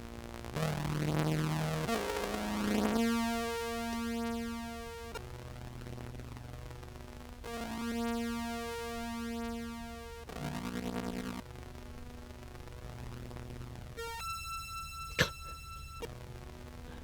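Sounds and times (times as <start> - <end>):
distorted low clarinet notes: 14.0 - 16.1.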